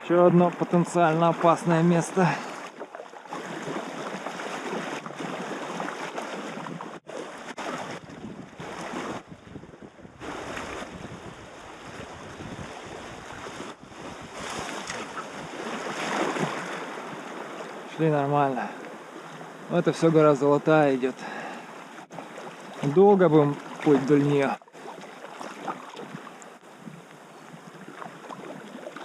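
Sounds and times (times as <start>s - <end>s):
wind buffeting microphone: 7.8s - 17.3s.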